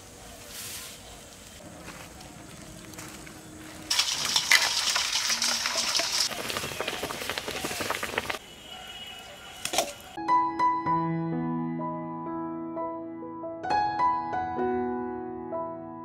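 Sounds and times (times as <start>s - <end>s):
food sizzling in a pan: 3.9s - 6.3s.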